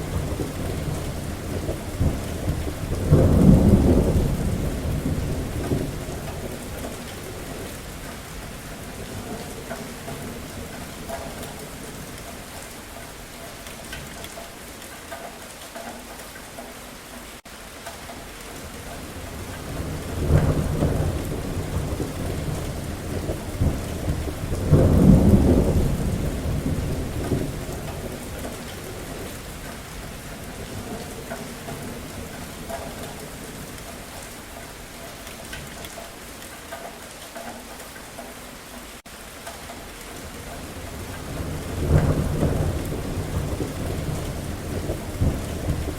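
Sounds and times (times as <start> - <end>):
thunder rumbling: 0.0 - 12.7, 18.7 - 34.4, 40.2 - 45.9
steady rain falling: 0.0 - 45.9.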